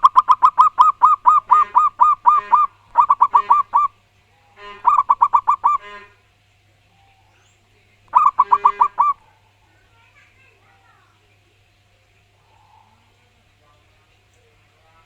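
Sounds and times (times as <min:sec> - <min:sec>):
dove cooing: 0:00.0 - 0:04.0, 0:04.6 - 0:06.2, 0:08.1 - 0:09.2
faint low hum: 0:00.0 - 0:15.0.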